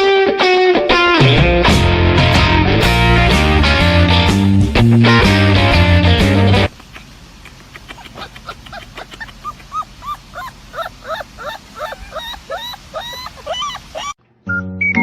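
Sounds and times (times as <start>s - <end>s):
music: 0.0s - 6.7s, 14.2s - 15.0s
dog yelping: 6.7s - 14.2s.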